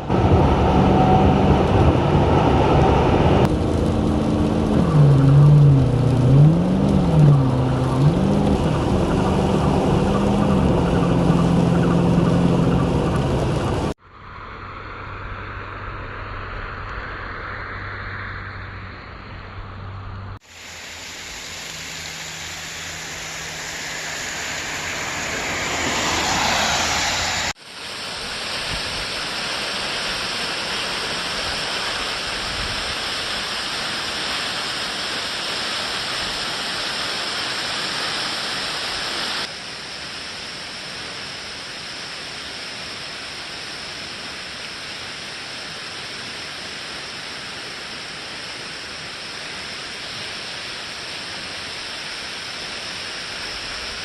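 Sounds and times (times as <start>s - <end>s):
waterfall rushing: 2.9s - 14.0s, 20.5s - 40.2s.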